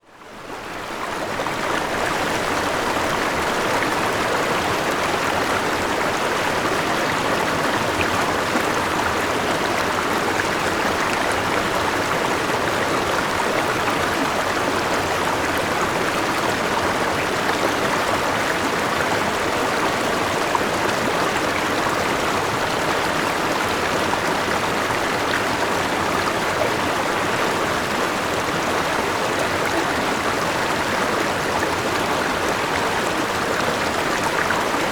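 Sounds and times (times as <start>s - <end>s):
river water flowing: 0.1s - 34.9s.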